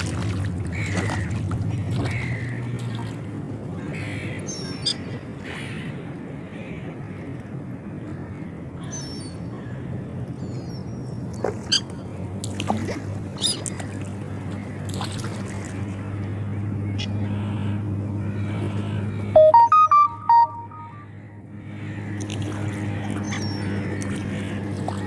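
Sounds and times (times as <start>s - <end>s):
low mechanical hum: 0.0s - 25.0s
electronic beeps: 19.4s - 21.0s.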